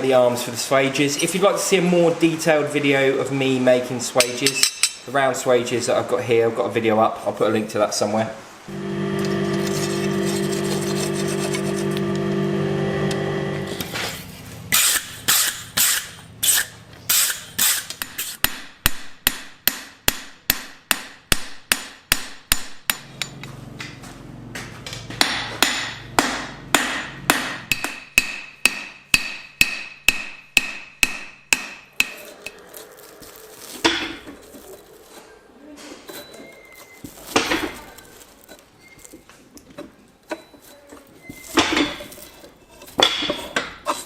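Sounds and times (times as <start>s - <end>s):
hammer striking steel on anvil: 17.2s - 23.5s, 25.2s - 32.3s.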